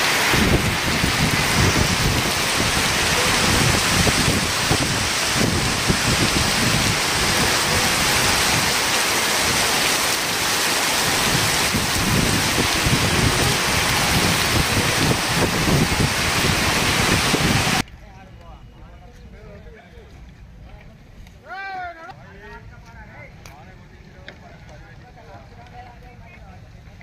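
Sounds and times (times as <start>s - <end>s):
heavy rain pouring: 0.0s - 17.9s.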